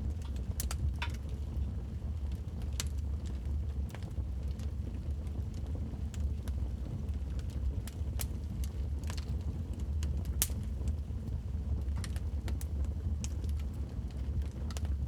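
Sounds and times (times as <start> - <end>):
fire low rumble: 0.0 - 15.0
fire pops and snaps: 0.1 - 1.4, 7.4 - 11.0, 11.8 - 15.0.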